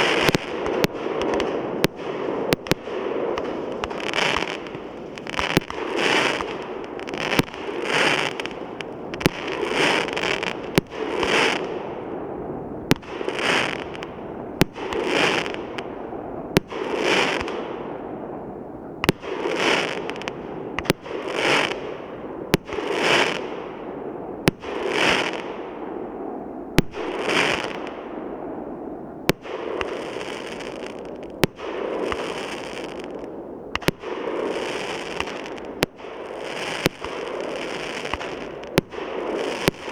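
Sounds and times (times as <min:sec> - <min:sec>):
firework hissing crackle: 0:00.0 - 0:16.0, 0:27.0 - 0:27.9, 0:29.6 - 0:39.9
firework bangs: 0:00.0 - 0:39.9.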